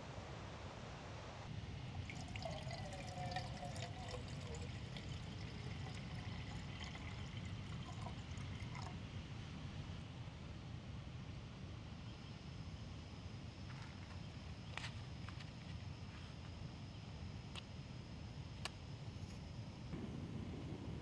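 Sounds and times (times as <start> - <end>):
water trickling and splashing: 2.0 - 9.0
steady low rumble: 19.0 - 21.0.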